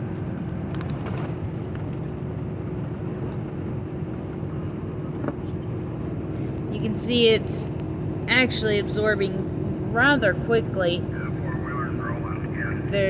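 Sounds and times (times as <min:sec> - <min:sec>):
constant hum: 0:00.0 - 0:13.0
truck road and engine drone: 0:00.0 - 0:13.0.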